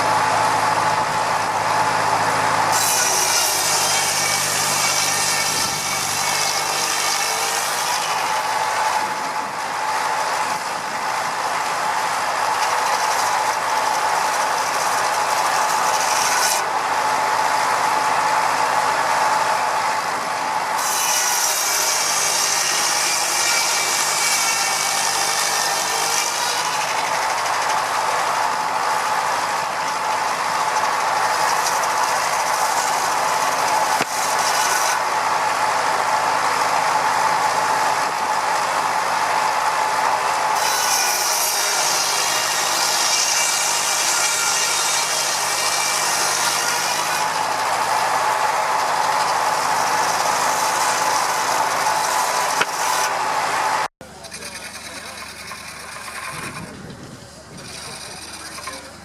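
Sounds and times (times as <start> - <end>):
stationary engine running: 0.0 - 6.5
machinery high-pitched hum: 0.0 - 7.1
engine machinery running: 0.0 - 43.9, 44.5 - 59.0.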